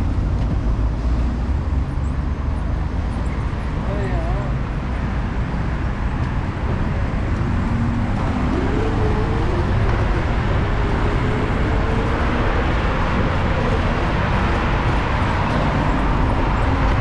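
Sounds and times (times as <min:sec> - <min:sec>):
wind rushing over microphone: 0:00.0 - 0:02.0, 0:02.9 - 0:17.0
road traffic noise: 0:00.0 - 0:17.0
vehicle engine hum: 0:00.0 - 0:17.0.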